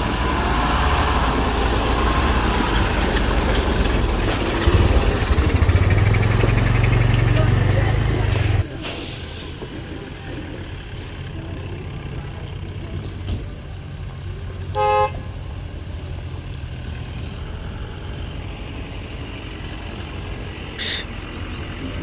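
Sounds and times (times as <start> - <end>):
vehicle engine running: 0.0 - 22.0
short horn toot: 14.8 - 15.2, 20.8 - 21.1.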